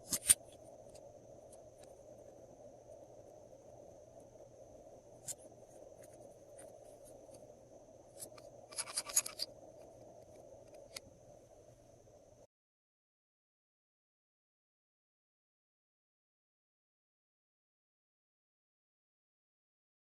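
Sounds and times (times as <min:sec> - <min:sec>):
faint steady hum: 0:00.0 - 0:12.5.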